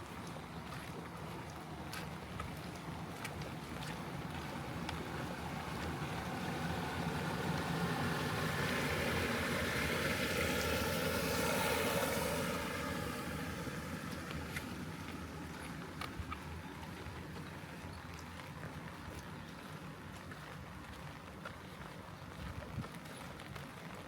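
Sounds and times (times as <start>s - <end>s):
rain: 0.0s - 24.0s
wind: 0.0s - 24.0s
motor vehicle passing: 3.8s - 17.4s.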